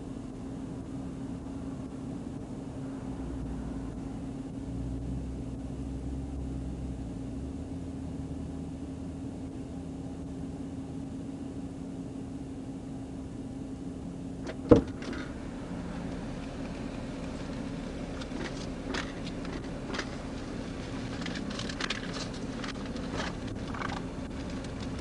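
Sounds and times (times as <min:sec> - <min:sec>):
vehicle cabin hum: 0:00.0 - 0:25.0
deep rumble: 0:14.5 - 0:25.0.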